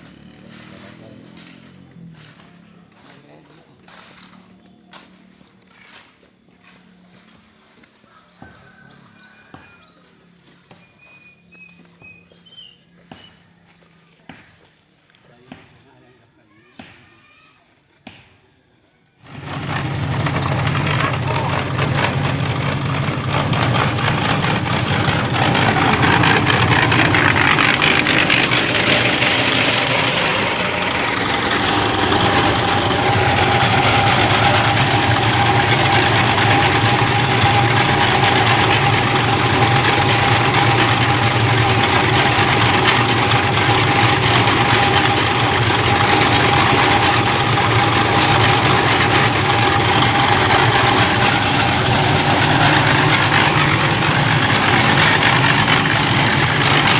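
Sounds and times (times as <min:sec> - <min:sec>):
engine running: 0:00.0 - 0:14.2, 0:19.2 - 0:56.9
steady whine: 0:19.2 - 0:56.9.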